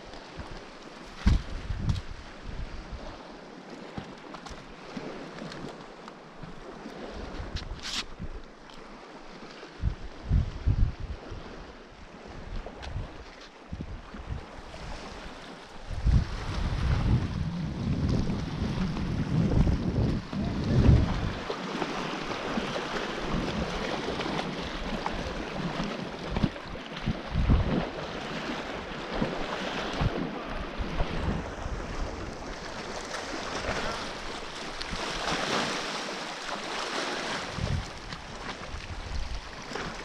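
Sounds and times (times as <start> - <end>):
wind buffeting microphone: 1.2 - 3.3, 9.7 - 35.9, 37.2 - 40.0.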